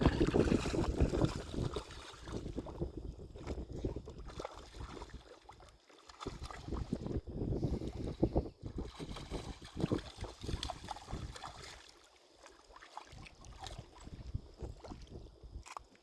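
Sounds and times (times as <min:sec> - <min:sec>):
dog splashing through water: 0:00.0 - 0:02.8, 0:03.4 - 0:07.2, 0:08.8 - 0:14.2.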